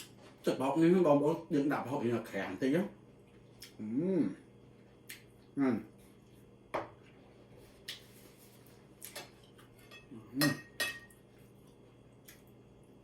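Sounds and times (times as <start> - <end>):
cutlery clinking against plate: 9.1 - 11.2.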